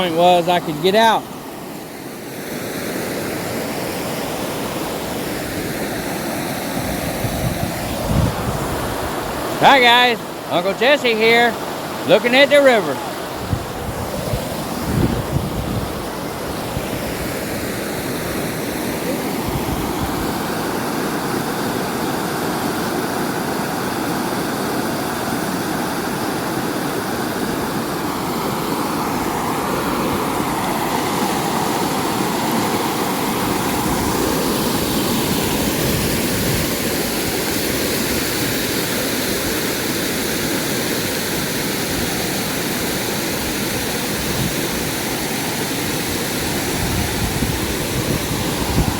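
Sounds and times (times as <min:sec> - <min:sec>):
fast-flowing river water rushing: 0:00.0 - 0:48.9.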